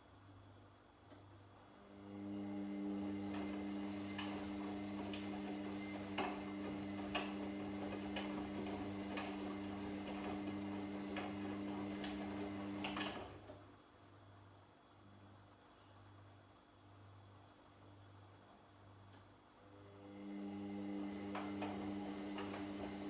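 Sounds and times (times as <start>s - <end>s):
washing machine motor humming: 1.9s - 13.6s, 20.0s - 23.0s.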